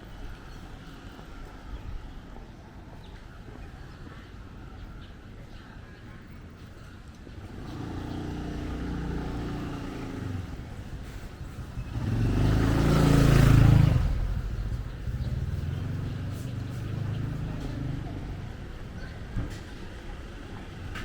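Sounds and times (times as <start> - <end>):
vehicle engines passing: 7.1 - 21.0.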